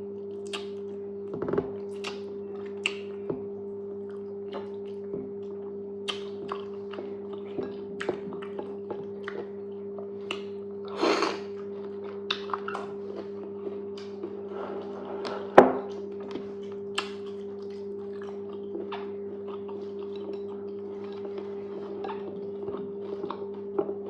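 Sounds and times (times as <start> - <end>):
low hum: 0.0 - 24.0
wet chewing smacks: 0.3 - 1.0, 4.0 - 9.6, 16.1 - 23.7.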